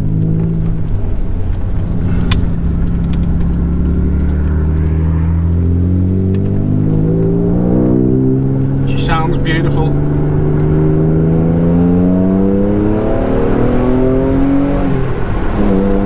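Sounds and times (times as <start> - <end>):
car engine accelerating: 0.0 - 16.0
sharp click: 0.4 - 5.6.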